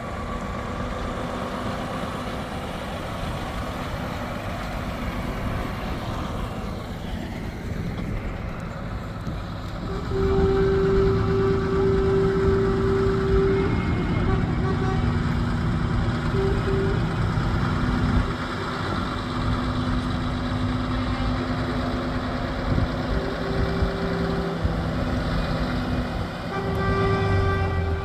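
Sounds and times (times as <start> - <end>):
truck engines running: 0.0 - 28.0
truck air horns: 9.7 - 18.3, 20.9 - 28.0.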